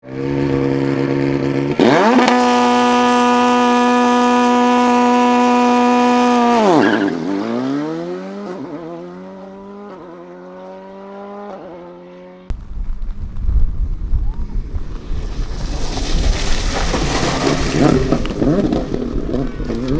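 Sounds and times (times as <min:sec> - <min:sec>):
rally car engine revving: 0:00.0 - 0:12.5, 0:14.5 - 0:19.9
loud rumbling noise: 0:02.4 - 0:06.7.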